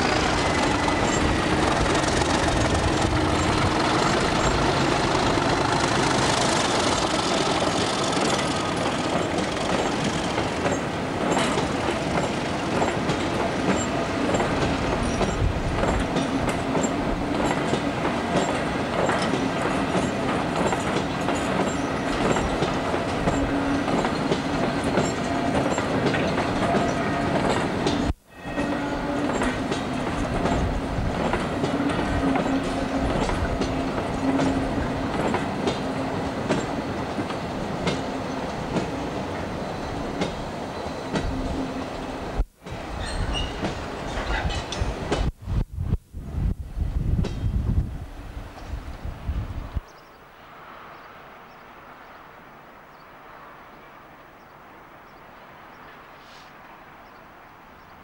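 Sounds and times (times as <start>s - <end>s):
train wheels clacking over joints: 0.0s - 28.1s, 29.0s - 39.5s, 43.0s - 45.3s.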